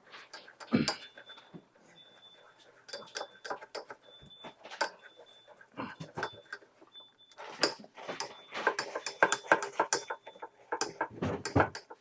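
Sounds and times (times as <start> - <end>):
utensil scraping a saucepan: 7.4 - 11.2.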